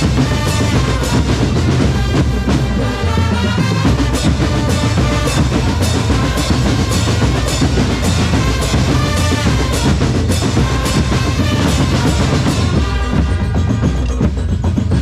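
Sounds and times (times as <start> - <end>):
bass and snare drum beat: 0.0 - 15.0
marching drum corps: 0.0 - 15.0.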